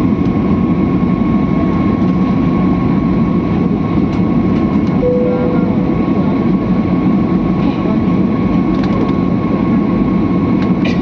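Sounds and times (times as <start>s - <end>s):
constant high whine: 0.0s - 11.0s
short steady tone: 5.0s - 6.5s.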